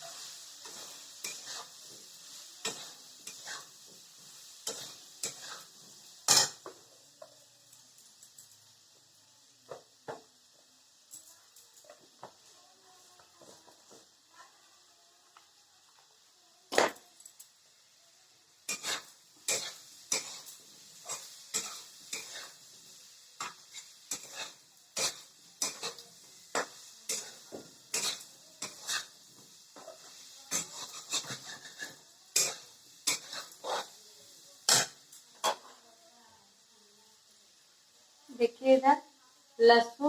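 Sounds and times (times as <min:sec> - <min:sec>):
spatula scraping cooking pan: 0:00.0 - 0:06.9, 0:18.7 - 0:35.8.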